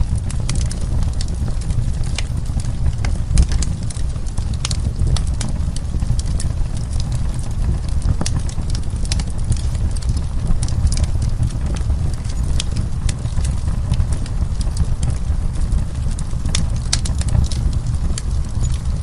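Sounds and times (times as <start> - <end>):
low rumble of fire: 0.0 - 19.0
wood fire crackling and popping: 0.0 - 19.0.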